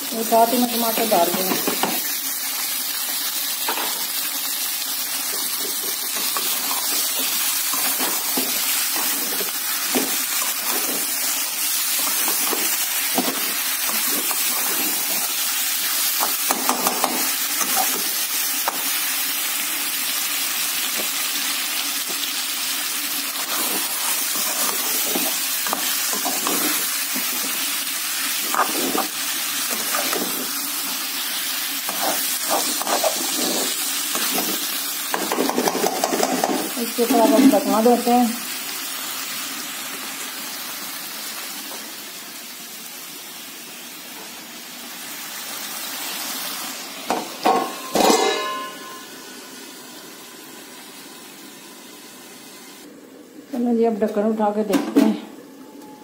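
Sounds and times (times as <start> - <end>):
food sizzling in a pan: 0.0 - 54.7
metal spatula scraping a pan: 31.9 - 34.6.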